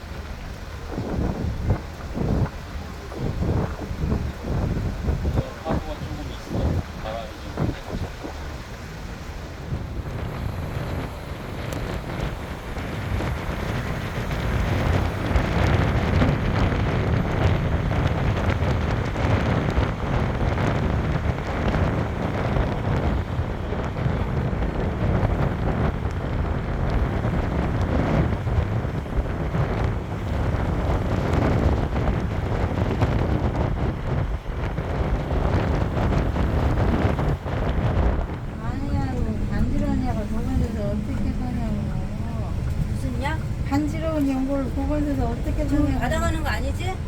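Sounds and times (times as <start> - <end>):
sea waves washing in: 0.0 - 47.0
wind buffeting the microphone: 0.0 - 47.0.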